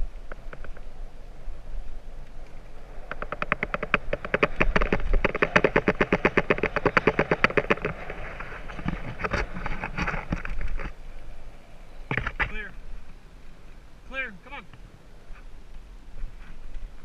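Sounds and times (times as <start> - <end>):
rough bicycle riding noise: 0.0 - 17.0
bicycle freewheel ratcheting: 3.1 - 8.1.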